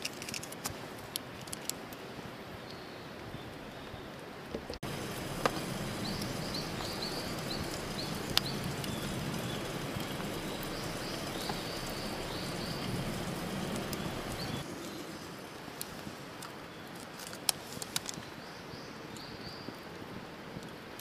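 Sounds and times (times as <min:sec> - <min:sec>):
steady rushing background noise: 0:04.7 - 0:18.3
sharp snaps: 0:05.4 - 0:13.0
small bird chirping: 0:05.4 - 0:15.4.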